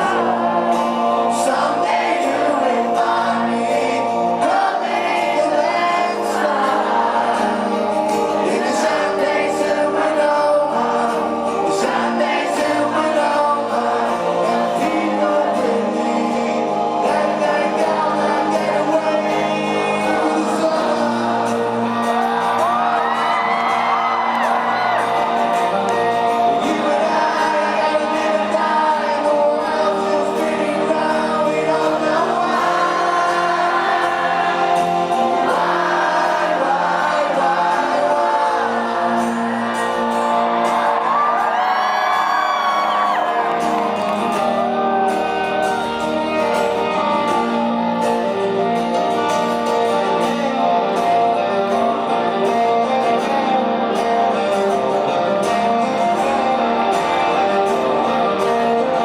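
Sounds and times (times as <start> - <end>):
crowd whooping: 0.0 - 28.9, 32.2 - 48.4
lead vocal singing: 0.0 - 59.0
rock band playing live: 0.0 - 59.0.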